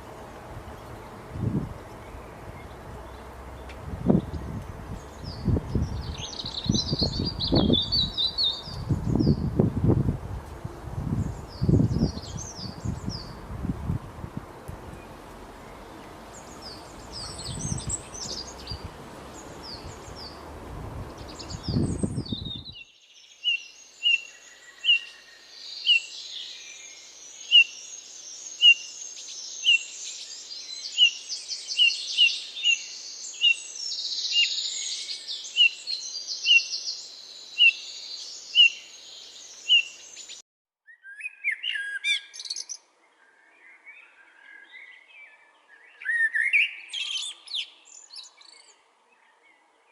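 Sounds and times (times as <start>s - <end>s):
high bird chirps: 5.1s - 9.5s.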